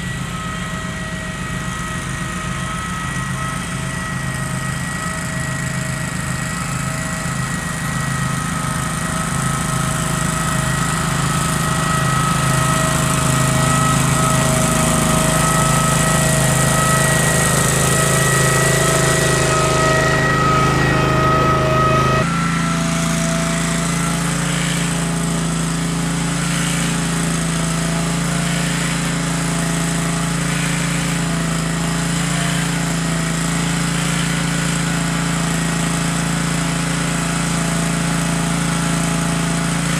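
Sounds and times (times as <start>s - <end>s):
steady whine: 0.0s - 27.2s
tractor engine running: 0.0s - 39.9s.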